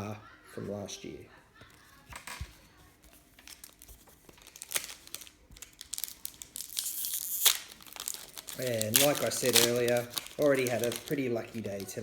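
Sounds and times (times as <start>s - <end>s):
packaging crinkling: 3.1s - 12.0s.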